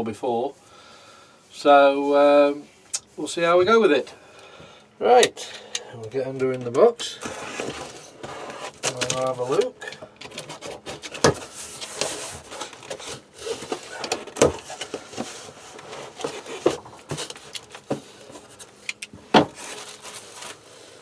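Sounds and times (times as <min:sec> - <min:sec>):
cardboard box rustling and scraping: 0:07.2 - 0:09.5, 0:10.3 - 0:21.0.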